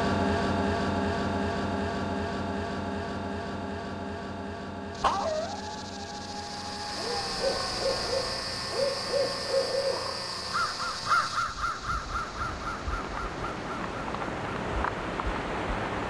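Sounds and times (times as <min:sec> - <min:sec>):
bird calling in quick notes: 0:05.0 - 0:14.2.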